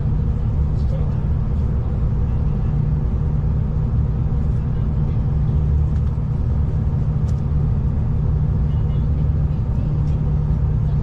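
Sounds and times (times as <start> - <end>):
diesel train rumble from inside: 0.0 - 11.0.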